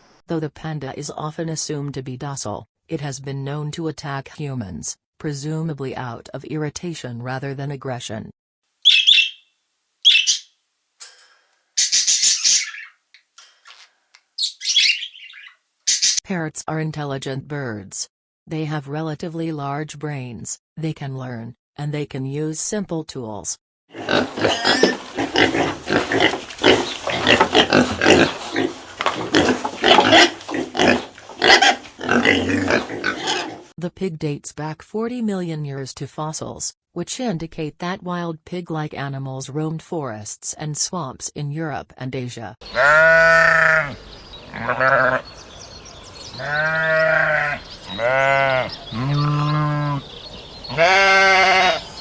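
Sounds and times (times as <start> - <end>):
pigs grunting: 23.9 - 33.7, 42.7 - 45.3, 46.4 - 51.9
sheep bleating: 42.6 - 45.3, 46.3 - 50.1, 50.7 - 51.9.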